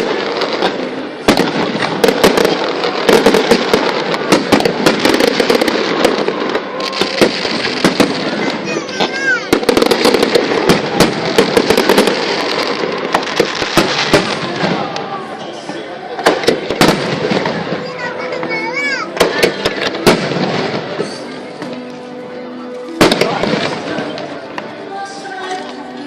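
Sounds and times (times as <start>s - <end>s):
firework whistle: 0.0s - 14.2s
fireworks bangs and crackles: 0.0s - 26.0s.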